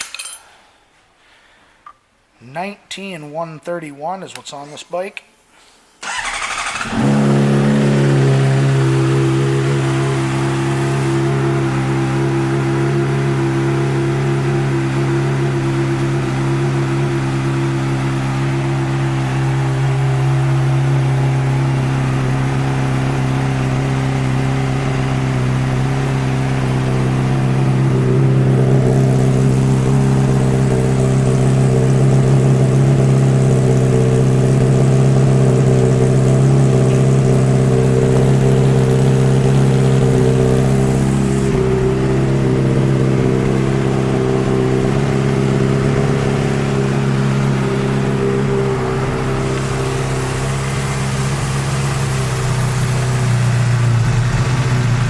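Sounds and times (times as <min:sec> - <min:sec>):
motorcycle engine idling: 0:06.0 - 0:55.0.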